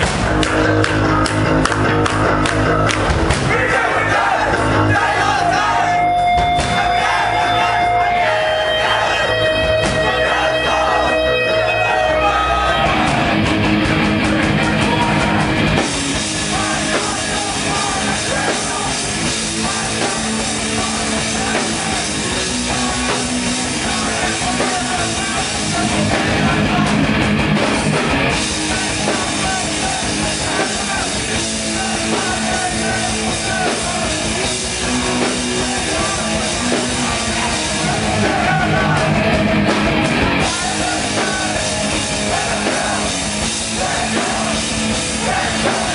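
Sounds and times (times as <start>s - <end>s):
punk band playing live: 0.0s - 45.9s
ringing guitar note: 5.9s - 12.4s.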